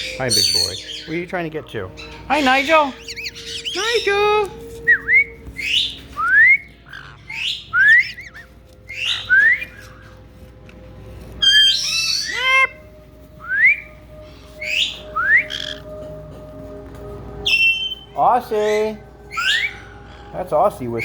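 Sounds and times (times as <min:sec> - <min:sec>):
parrots squawking: 0:00.0 - 0:10.3, 0:11.4 - 0:12.9, 0:13.7 - 0:16.2, 0:17.4 - 0:21.0
parrot upward whistle: 0:04.9 - 0:10.0, 0:19.3 - 0:19.9.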